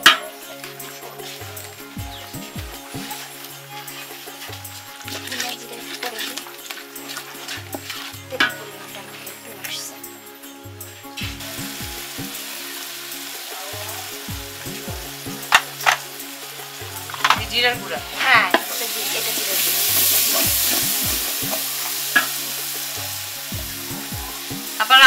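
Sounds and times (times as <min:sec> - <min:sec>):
food sizzling in oil: 0:00.0 - 0:25.0
metal spatula scraping pot: 0:17.1 - 0:23.0.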